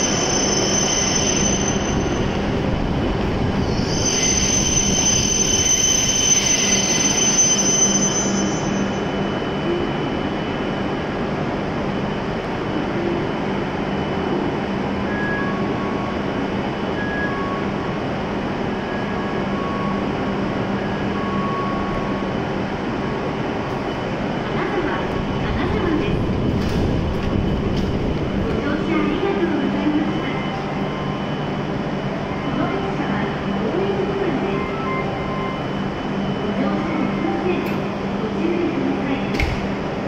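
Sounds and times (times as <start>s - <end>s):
train brakes squealing: 0.0s - 2.7s, 3.4s - 10.6s
train rumble and hum: 0.0s - 40.0s.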